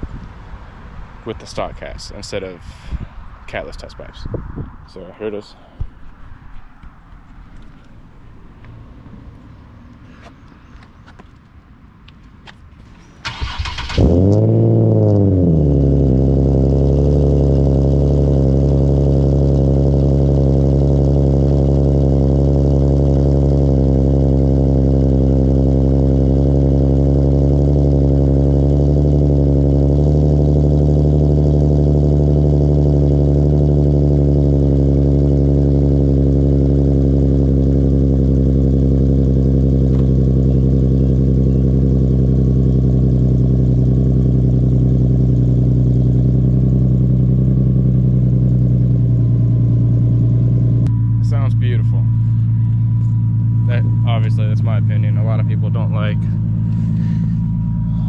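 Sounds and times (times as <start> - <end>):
car engine revving and idling: 12.8 - 58.0.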